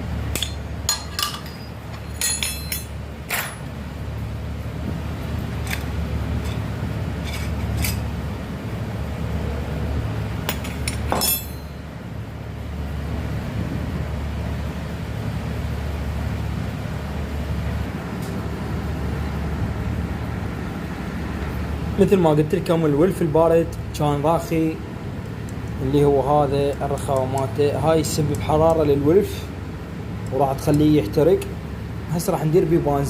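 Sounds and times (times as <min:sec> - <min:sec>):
low steady hum: 0:00.0 - 0:33.0
metal tools clinking: 0:00.4 - 0:03.7, 0:05.6 - 0:08.1, 0:10.5 - 0:11.8.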